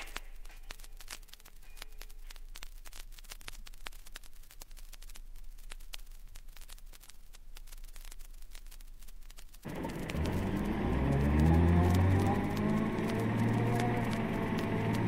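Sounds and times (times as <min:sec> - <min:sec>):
vinyl record crackles and pops: 0:00.0 - 0:15.0
low steady hum: 0:09.6 - 0:15.0.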